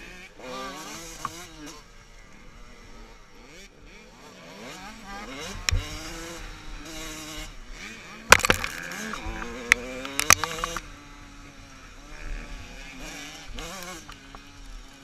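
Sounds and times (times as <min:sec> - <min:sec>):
motocross motorcycle engines revving: 0:00.0 - 0:15.0
sharp cracks: 0:08.3 - 0:10.9.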